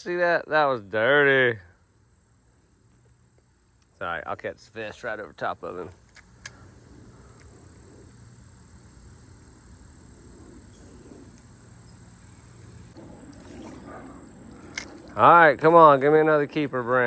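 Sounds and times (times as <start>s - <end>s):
insect trilling: 4.0s - 17.0s.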